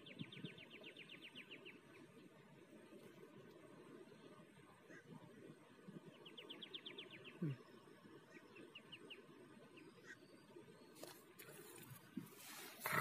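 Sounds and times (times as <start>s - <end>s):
faint bird chirps: 6.0s - 11.2s
short rustle: 11.0s - 13.0s.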